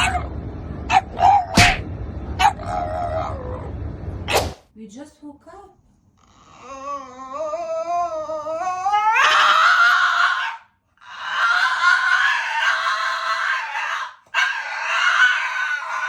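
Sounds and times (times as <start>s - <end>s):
dog howling: 2.4s - 3.8s, 6.6s - 16.0s.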